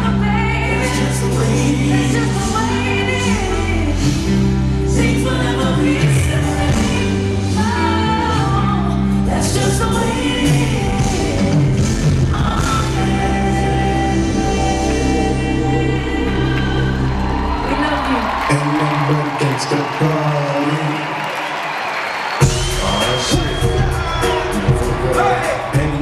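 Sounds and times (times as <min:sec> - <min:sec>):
sustained bass notes: 0:00.0 - 0:18.7
person singing: 0:00.0 - 0:21.0, 0:22.4 - 0:26.0.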